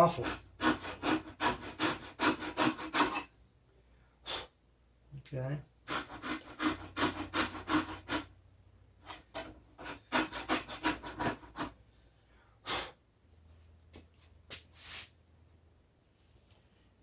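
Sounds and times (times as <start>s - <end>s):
hacksaw strokes: 0.0s - 3.3s, 5.9s - 8.3s, 9.1s - 11.8s.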